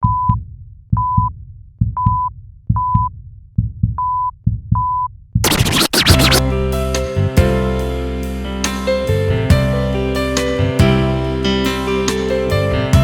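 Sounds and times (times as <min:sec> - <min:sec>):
burst of noise: 0:05.4 - 0:06.8
music: 0:05.4 - 0:13.0
short electronic beeps: 0:05.5 - 0:06.5.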